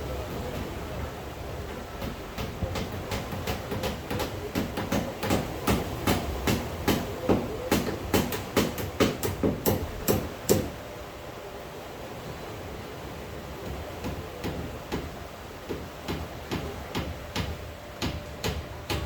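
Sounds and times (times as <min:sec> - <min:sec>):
steady hiss: 0:00.0 - 0:19.0
rapid sharp knocks: 0:02.0 - 0:10.7, 0:15.7 - 0:19.0.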